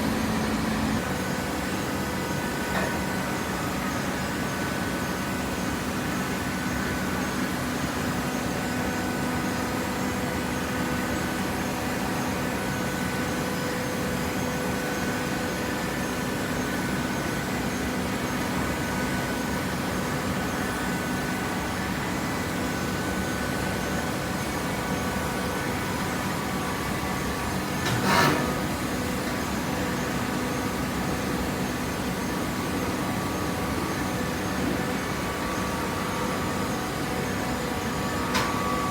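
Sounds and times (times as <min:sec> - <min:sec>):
hydraulic press motor humming: 0:00.0 - 0:01.8.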